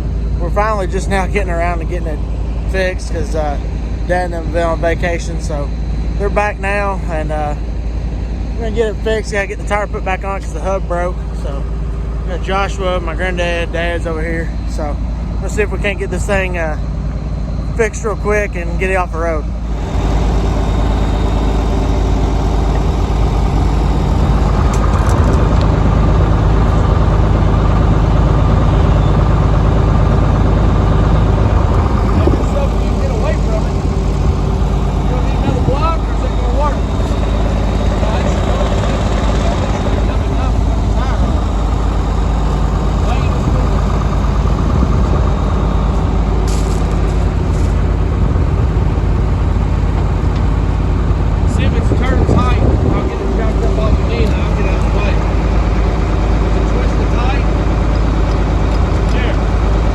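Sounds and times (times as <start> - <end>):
vehicle engine idling: 19.5 - 59.9.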